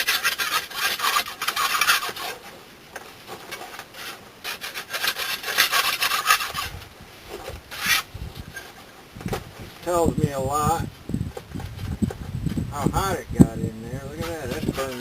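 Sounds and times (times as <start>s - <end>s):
scraper rasping over bricks: 0.0s - 2.6s, 3.2s - 9.0s, 13.7s - 15.0s.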